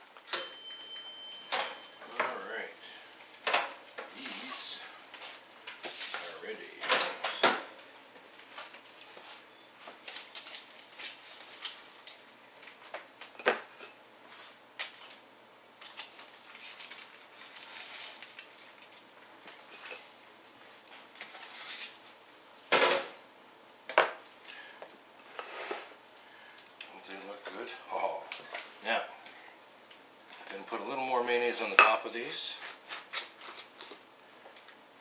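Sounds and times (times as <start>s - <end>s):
utensils and dishes clinking: 0.3s - 2.4s.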